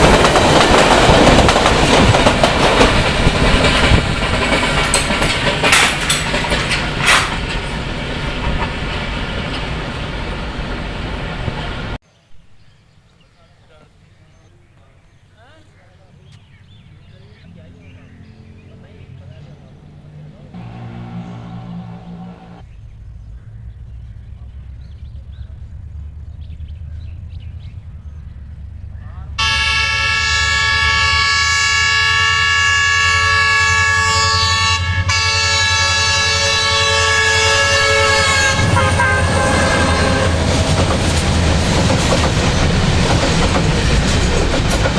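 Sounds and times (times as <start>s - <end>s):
diesel locomotive rumbling: 0.0s - 12.0s, 16.0s - 44.9s
train wheels clattering over rails: 0.0s - 12.0s, 20.6s - 22.6s, 38.3s - 44.9s.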